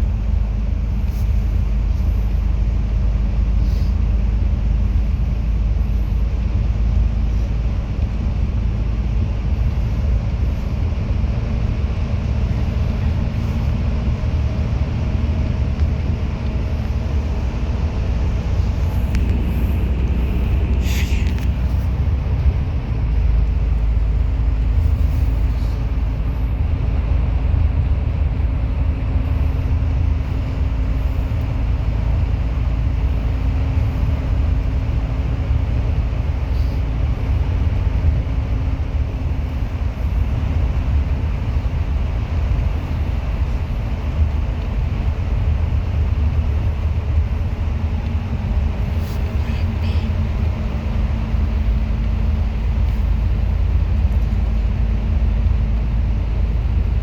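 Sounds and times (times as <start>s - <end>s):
bus engine and road rumble: 0.0s - 57.0s
faint steady hum: 28.2s - 57.0s.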